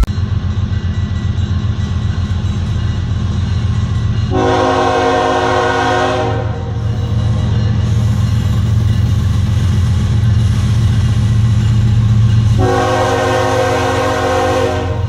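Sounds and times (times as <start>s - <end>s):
diesel locomotive rumble: 0.0s - 15.0s
train horn: 4.3s - 6.8s, 12.5s - 15.0s.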